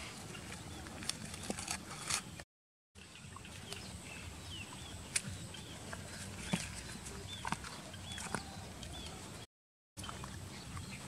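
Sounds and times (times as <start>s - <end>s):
birds chirping: 3.0s - 11.0s.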